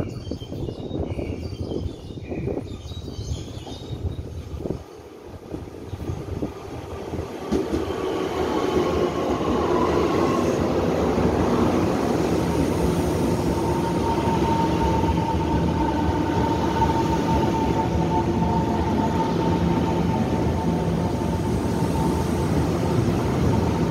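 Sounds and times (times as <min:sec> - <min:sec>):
electric train rumbling in: 0:03.4 - 0:23.9
train high whine: 0:05.2 - 0:23.9.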